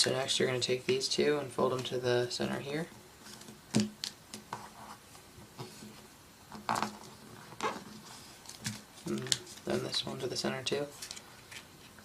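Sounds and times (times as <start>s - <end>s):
paper folding rustles: 6.7s - 10.0s.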